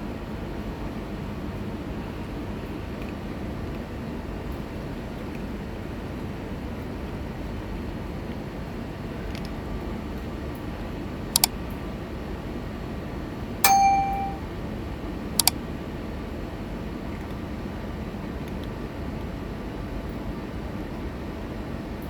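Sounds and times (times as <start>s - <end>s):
metallic clang ringing: 13.7s - 14.4s.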